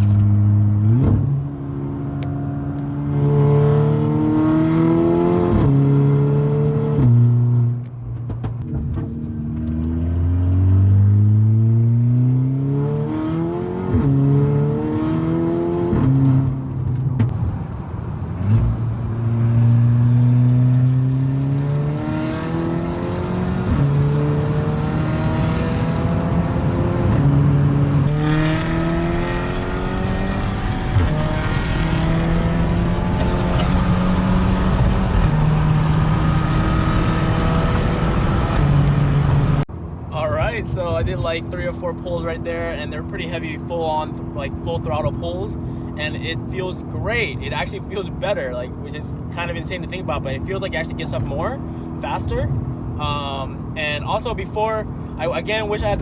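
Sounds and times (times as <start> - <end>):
turbocharged engine revving through gears: 0.0 - 7.6, 9.4 - 17.3, 18.4 - 39.7.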